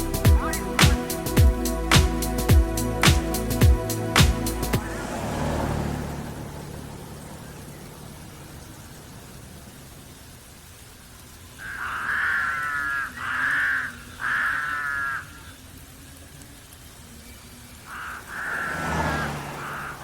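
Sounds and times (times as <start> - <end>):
bird giving harsh calls: 0.0 - 1.2, 11.6 - 15.5, 17.9 - 20.0.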